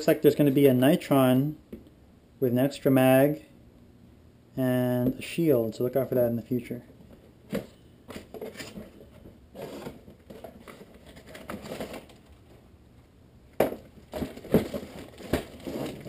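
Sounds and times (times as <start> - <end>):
cardboard scraping and rustling: 7.1 - 12.6, 13.7 - 16.0
knocks and thumps: 13.6 - 16.0.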